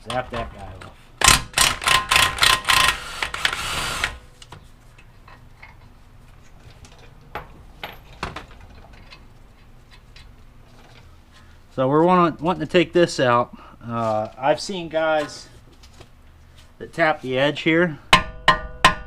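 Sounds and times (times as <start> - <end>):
impact wrench running: 1.2 - 4.2.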